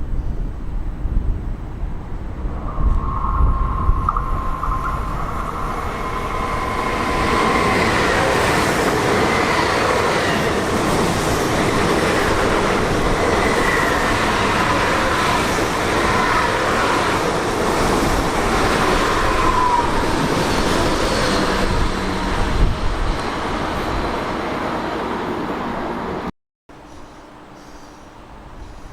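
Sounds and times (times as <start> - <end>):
train running on tracks: 0.3 - 28.9
faint high tones: 2.4 - 8.5.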